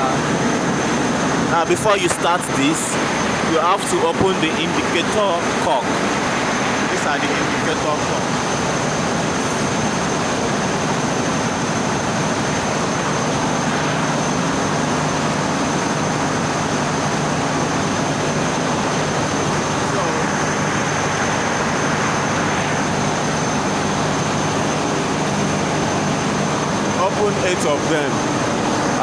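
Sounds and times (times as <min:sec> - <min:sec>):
engine room machinery drone: 0:00.0 - 0:29.0
high-pitched whine: 0:00.0 - 0:29.0.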